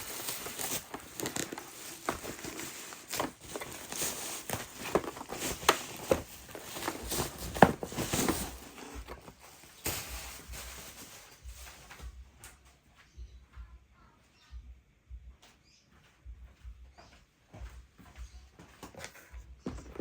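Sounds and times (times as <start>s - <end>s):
plastic wrapping crinkling: 0.0s - 12.1s.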